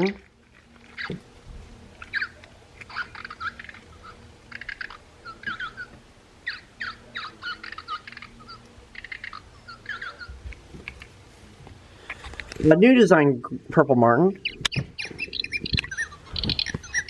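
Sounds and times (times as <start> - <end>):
recorded bird chirps through small speaker: 0.0 - 0.2, 2.0 - 10.4, 14.3 - 17.0.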